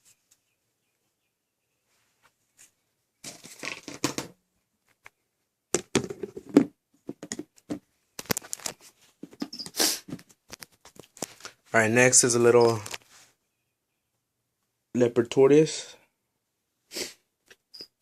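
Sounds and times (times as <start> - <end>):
plastic packaging rustling: 8.2 - 8.9.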